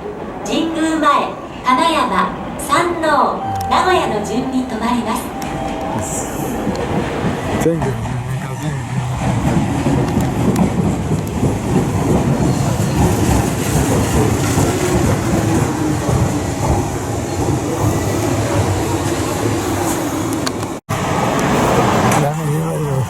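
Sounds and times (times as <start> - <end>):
electric train rumbling: 0.0 - 23.0
wheels clattering over rail joints: 6.7 - 17.6.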